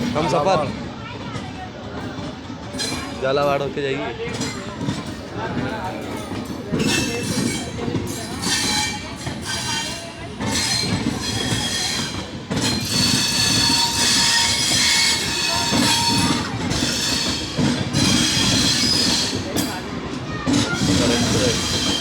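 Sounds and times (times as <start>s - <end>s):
train wheels rumbling on track: 0.0s - 22.0s
high wheel squeal: 6.8s - 19.6s, 20.5s - 22.0s.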